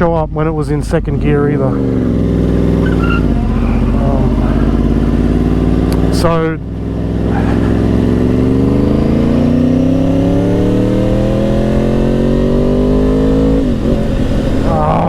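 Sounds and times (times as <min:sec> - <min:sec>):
gear change: 0:00.0 - 0:15.0
motorcycle engine revving: 0:00.0 - 0:15.0.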